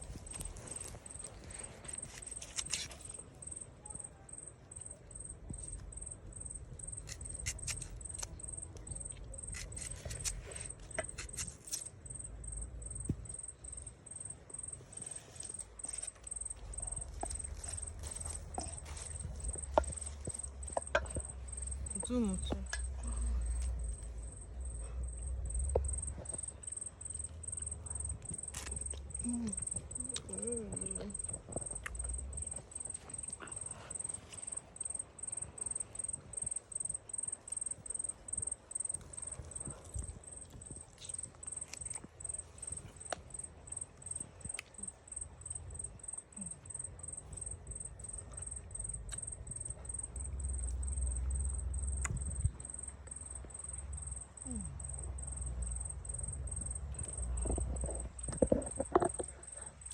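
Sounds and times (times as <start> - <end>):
insect trilling: 25.7 - 42.4.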